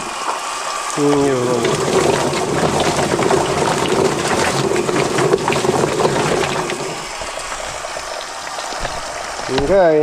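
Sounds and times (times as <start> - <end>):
chicken plucker machine running: 0.9 - 8.2.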